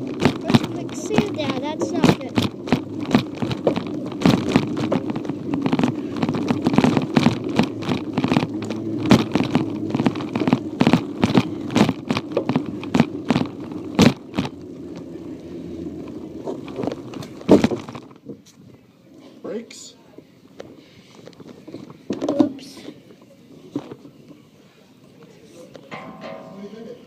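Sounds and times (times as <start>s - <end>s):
bicycle rattling and knocking: 0.0s - 18.4s, 25.8s - 27.0s
tyres rumbling: 0.0s - 18.8s
wind: 0.0s - 26.6s.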